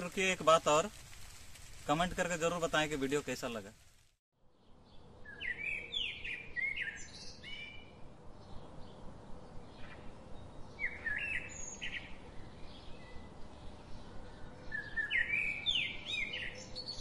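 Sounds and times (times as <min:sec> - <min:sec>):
faint outdoor background: 0:00.0 - 0:17.0
small birds chirping: 0:04.4 - 0:17.0.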